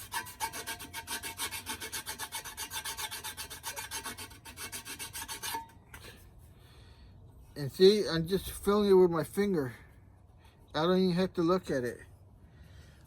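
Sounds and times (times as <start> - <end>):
hand file rasping on metal: 0.0 - 6.1.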